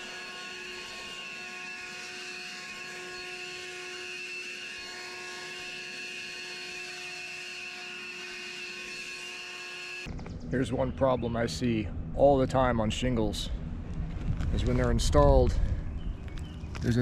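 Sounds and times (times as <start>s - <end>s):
leaf blower running: 0.0s - 10.3s.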